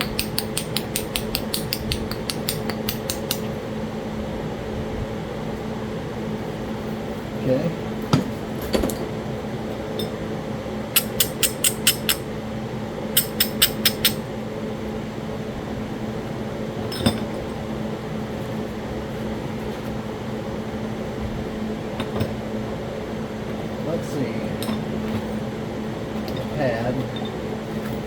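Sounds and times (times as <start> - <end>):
stone tapping on stone: 0.0 - 3.5, 11.0 - 12.2, 13.2 - 14.2
steady low hum: 0.0 - 28.0.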